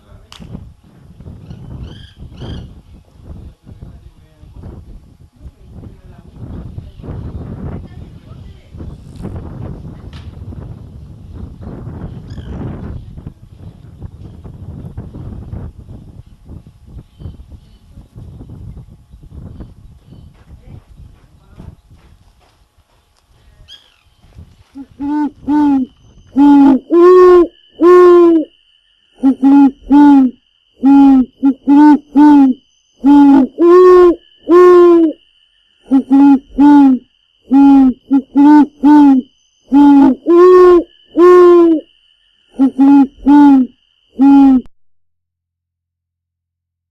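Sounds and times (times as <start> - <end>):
woodpecker nasal calls: 24.8 - 28.5, 29.2 - 35.2, 35.8 - 41.9, 42.5 - 44.7.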